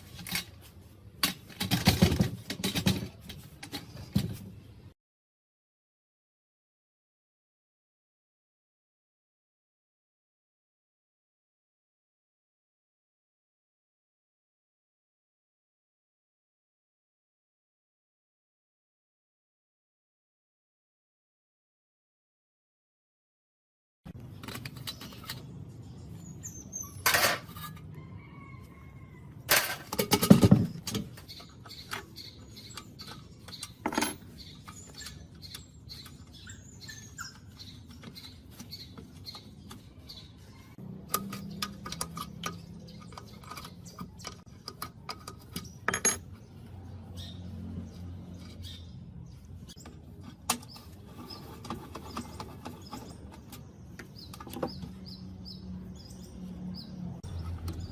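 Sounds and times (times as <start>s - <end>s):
birds chirping: 24.3s - 29.3s, 30.4s - 57.9s
metal tools clinking: 33.1s - 35.2s, 44.8s - 46.4s.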